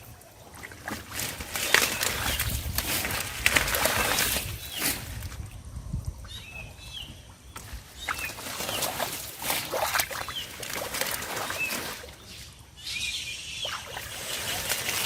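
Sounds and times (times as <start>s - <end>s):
hands splashing through water plants: 0.0s - 5.5s, 7.6s - 12.2s, 13.6s - 15.0s.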